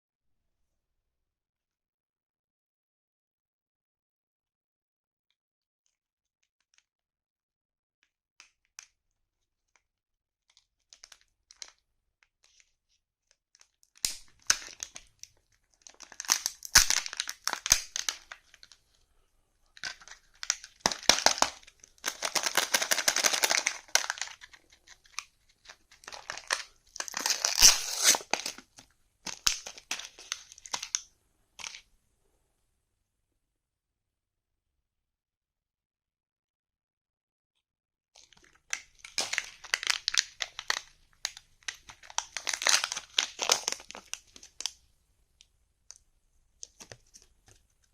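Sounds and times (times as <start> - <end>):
candy wrappers crinkling: 10.5 - 11.8, 12.4 - 19.0, 19.6 - 31.8, 38.2 - 44.9.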